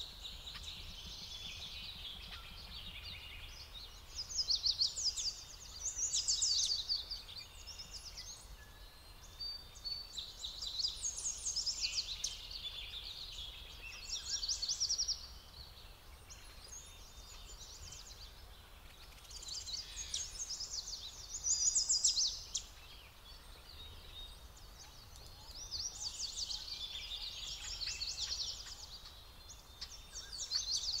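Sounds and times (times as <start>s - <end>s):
faint background noise: 0.0s - 31.0s
songbirds trilling: 0.0s - 31.0s.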